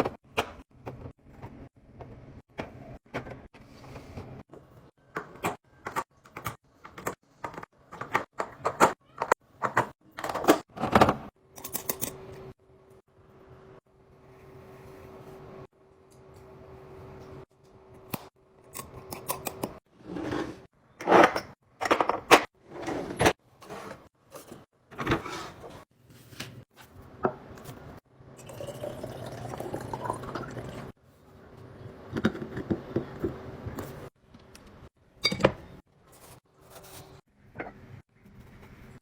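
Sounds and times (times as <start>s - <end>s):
liquid pouring into container: 28.4s - 30.9s.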